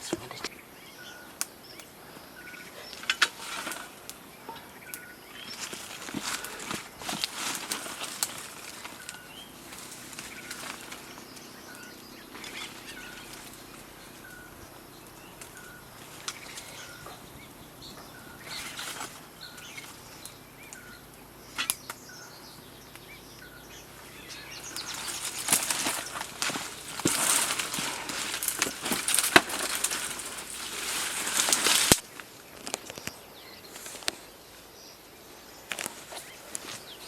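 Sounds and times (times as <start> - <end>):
rustling: 2.6 - 20.8, 23.8 - 34.6.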